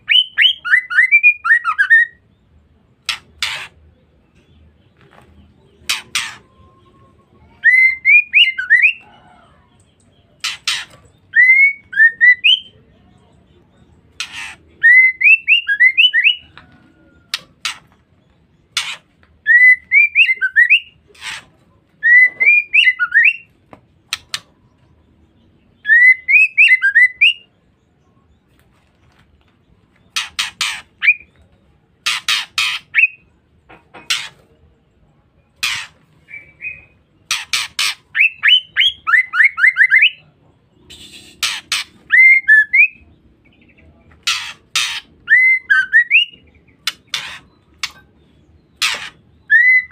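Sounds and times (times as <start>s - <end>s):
bird harsh ticks: 30.1s - 31.0s, 46.8s - 48.1s
bird whistled calls: 40.9s - 43.0s, 44.3s - 46.4s, 48.9s - 49.9s.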